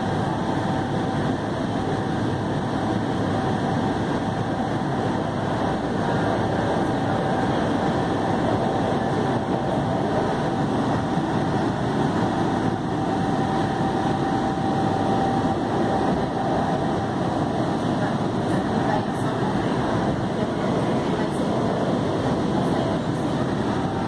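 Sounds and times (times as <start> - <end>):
thin steady whine: 0.0 - 24.0
train wheels rumbling on rails: 0.0 - 24.0.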